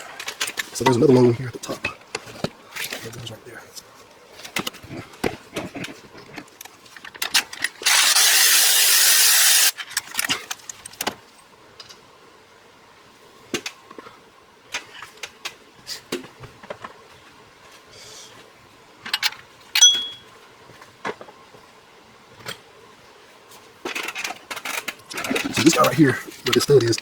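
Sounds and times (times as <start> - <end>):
power ratchet running: 7.8 - 9.7
metal tools clinking: 19.2 - 20.2.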